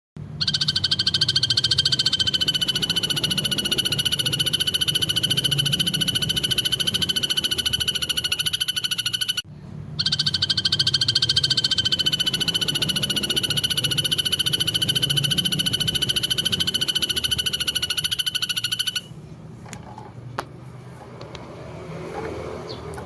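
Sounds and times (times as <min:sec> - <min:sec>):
animal pulsed trill: 0:00.4 - 0:09.4, 0:10.0 - 0:19.2.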